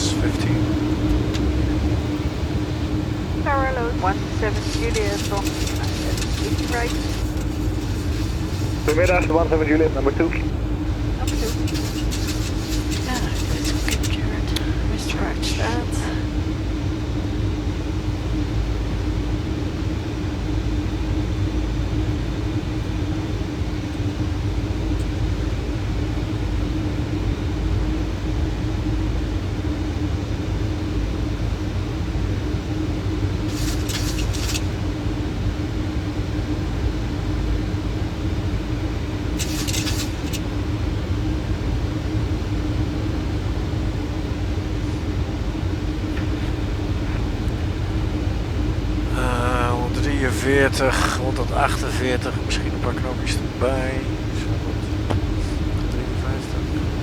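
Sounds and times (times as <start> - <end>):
constant hum: 0.0 - 57.0
rumble of airflow and engines: 0.0 - 57.0
short hissing bursts: 33.5 - 34.6.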